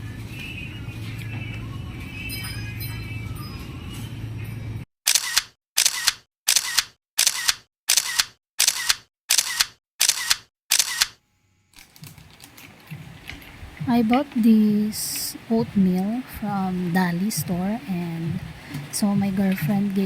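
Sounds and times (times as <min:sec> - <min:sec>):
camera shutter clicks: 0:05.1 - 0:11.2
background music: 0:12.1 - 0:20.0.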